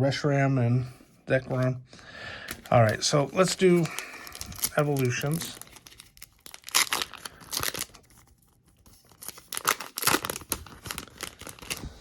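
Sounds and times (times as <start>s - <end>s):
foil pack crinkling and tearing: 2.4s - 12.0s.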